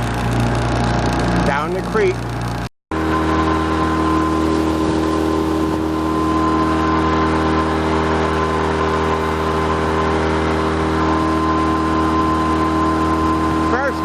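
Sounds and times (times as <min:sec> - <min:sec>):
motorboat engine running: 0:00.0 - 0:14.0
water rushing hiss: 0:04.3 - 0:06.1.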